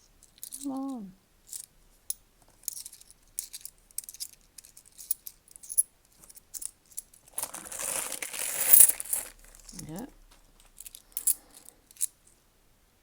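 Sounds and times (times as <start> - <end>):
rustle of coins and bag: 2.6 - 12.1
coins clinking: 6.5 - 9.9.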